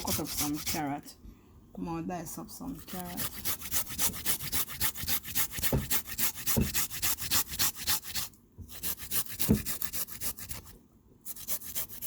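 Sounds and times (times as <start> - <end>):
food grated on metal grater: 0.0 - 0.9, 2.8 - 10.7.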